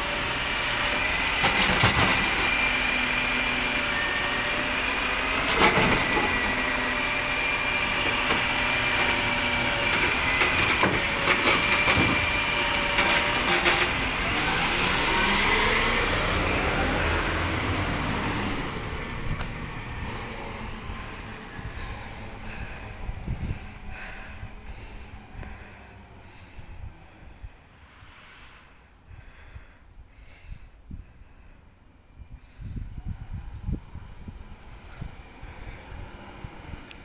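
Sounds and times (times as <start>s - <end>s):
truck engine pulling away: 0.0s - 28.6s, 33.2s - 37.0s
hydraulic whine: 0.0s - 28.8s.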